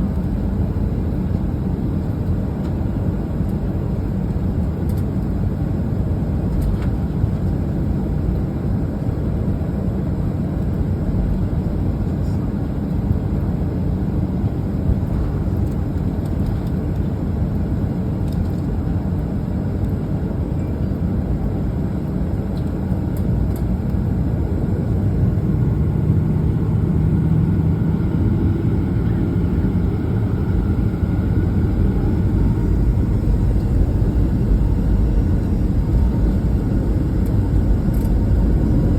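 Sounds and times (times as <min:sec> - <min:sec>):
jet engines rumbling in cabin: 0:00.0 - 0:38.9
airflow: 0:29.6 - 0:38.8.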